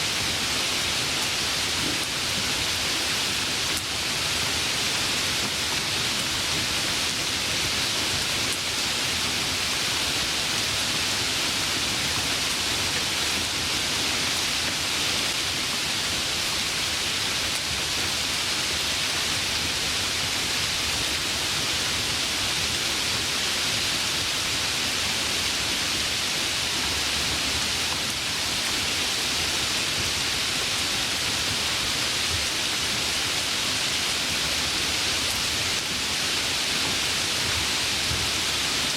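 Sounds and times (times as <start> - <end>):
steady rainfall hiss: 0.0 - 38.9.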